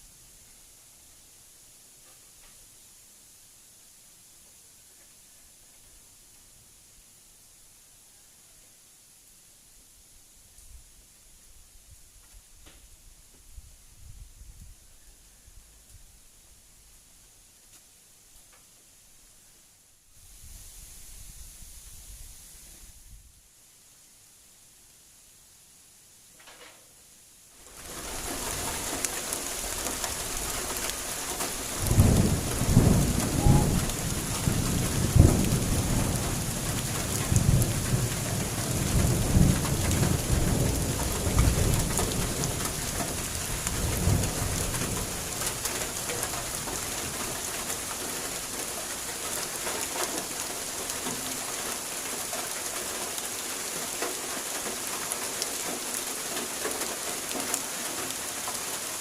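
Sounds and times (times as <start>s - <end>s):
heavy rain hissing: 18.8s - 26.3s, 27.0s - 59.0s
rumbling thunder: 31.3s - 47.2s.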